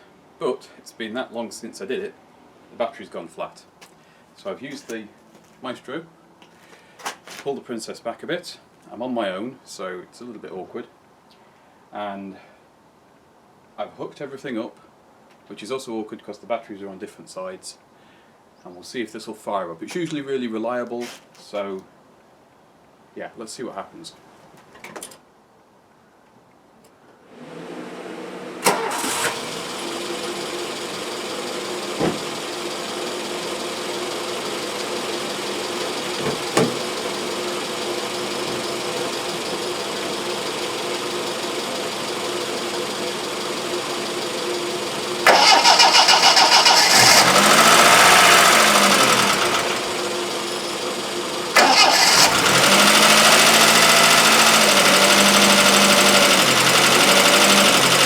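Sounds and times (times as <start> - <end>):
car engine starting and idling: 27.4 - 58.0.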